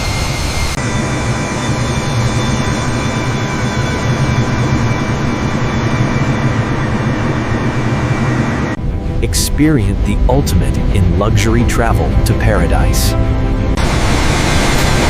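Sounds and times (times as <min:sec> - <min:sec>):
airplane engine drone: 0:00.0 - 0:15.0.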